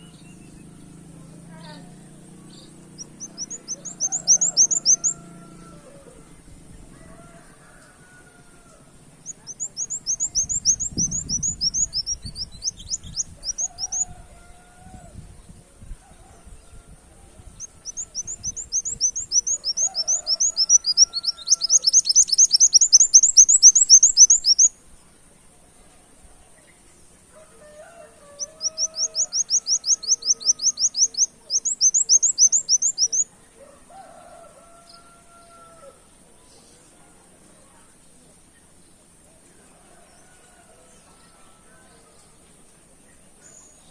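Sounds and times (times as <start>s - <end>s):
bird chattering trills: 2.7s - 5.2s, 9.2s - 14.0s, 17.6s - 24.7s, 28.4s - 33.3s.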